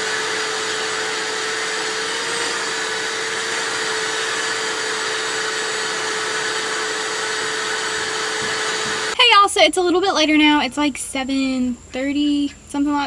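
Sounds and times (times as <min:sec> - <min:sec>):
shop vacuum running: 0:00.0 - 0:09.2.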